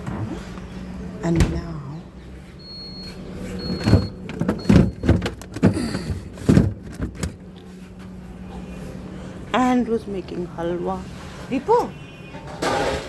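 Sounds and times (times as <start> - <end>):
refrigerator doors and drawers shutting: 0.0 - 1.8, 2.7 - 7.5.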